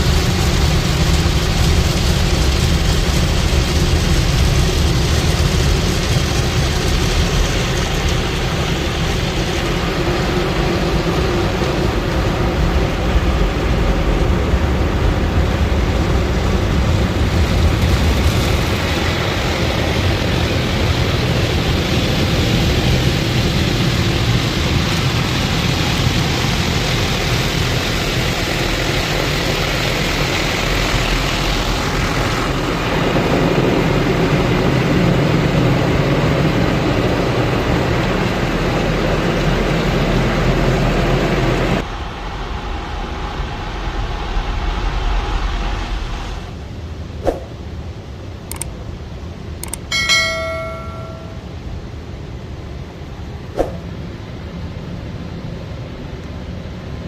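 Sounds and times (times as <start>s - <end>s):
car wash machinery rushing: 0.0s - 47.2s.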